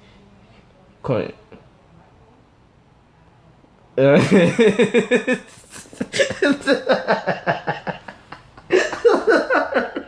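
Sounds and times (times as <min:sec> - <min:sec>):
man laughing hard: 0:04.2 - 0:10.0.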